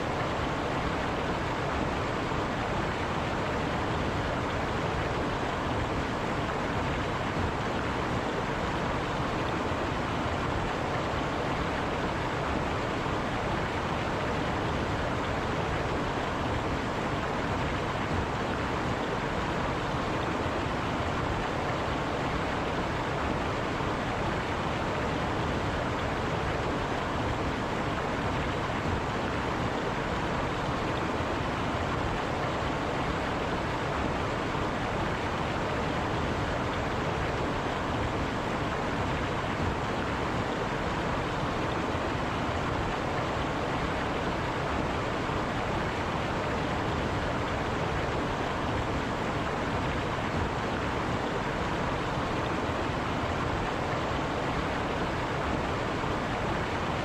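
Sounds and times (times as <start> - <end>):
river flowing over rocks: 0.0 - 57.0.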